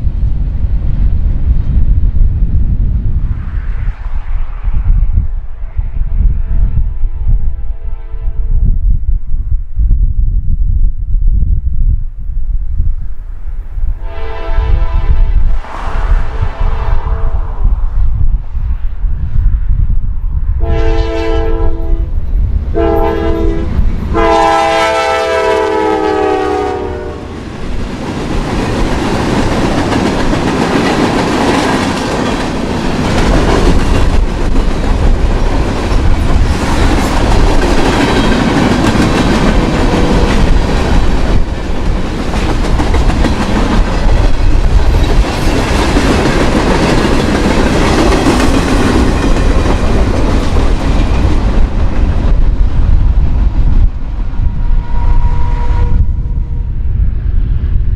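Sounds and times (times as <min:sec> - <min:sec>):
locomotive air horn blasts: 0:14.0 - 0:15.4, 0:20.6 - 0:22.1, 0:22.8 - 0:27.3, 0:54.8 - 0:56.0
train cars rumbling and clattering: 0:26.9 - 0:56.5.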